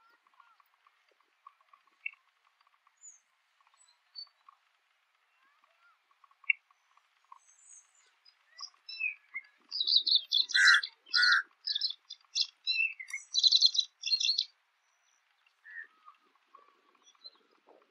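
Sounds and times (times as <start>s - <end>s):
bird chirping: 0.0s - 17.9s
harsh squeaky bird chattering: 8.5s - 14.4s.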